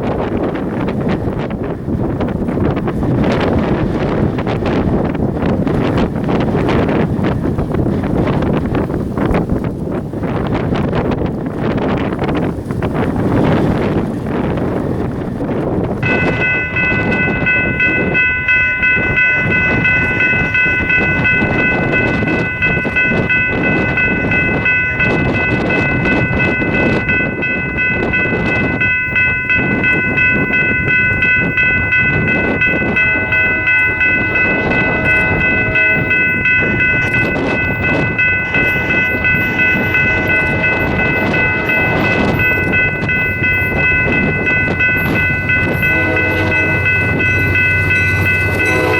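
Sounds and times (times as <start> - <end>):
railcars clattering over rail joints: 0.0 - 48.9
high-pitched squeal: 32.6 - 48.9.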